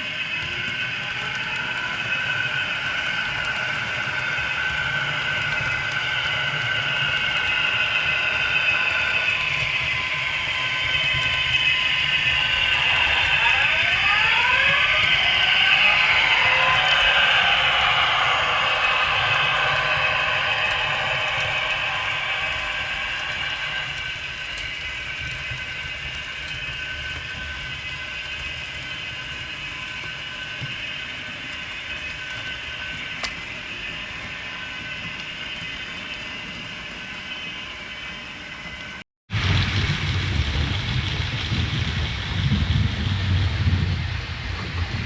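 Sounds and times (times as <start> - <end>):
low rumble: 2.9 - 25.9, 39.3 - 45.0.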